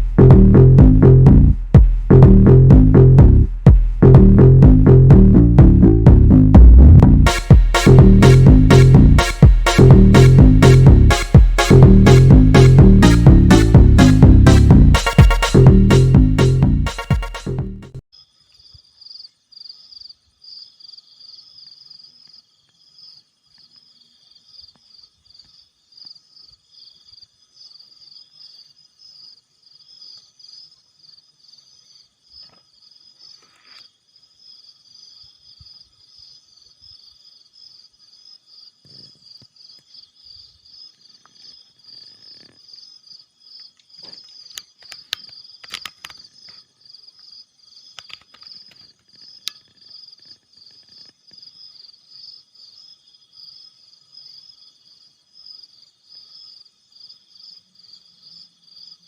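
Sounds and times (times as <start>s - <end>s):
night insects trilling: 18.2s - 59.0s.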